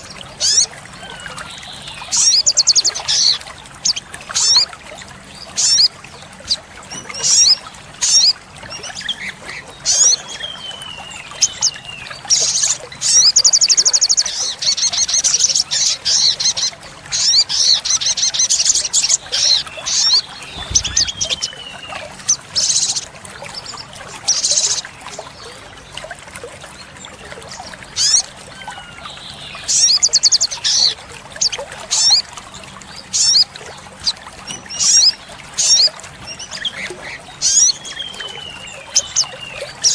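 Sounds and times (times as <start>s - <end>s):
bird singing high chirps: 18.4s - 23.0s.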